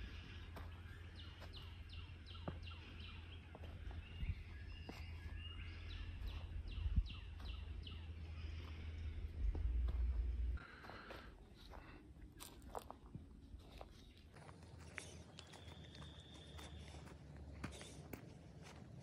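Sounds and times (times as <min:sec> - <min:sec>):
bird chirping: 0:00.0 - 0:10.6, 0:13.6 - 0:18.0
low microphone rumble: 0:00.0 - 0:10.6
footsteps on leaf litter: 0:10.0 - 0:18.9.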